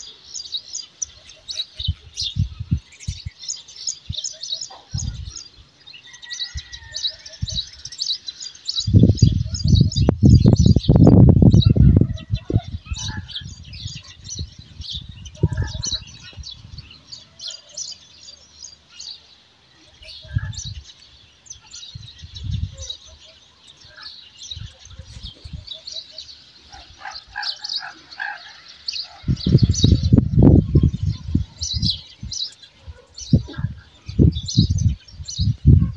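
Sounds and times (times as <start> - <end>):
small birds chirping: 0.0 - 35.9
wind gusts on microphone: 1.3 - 8.0, 8.7 - 17.3, 20.0 - 23.2, 23.8 - 25.9, 29.0 - 35.9.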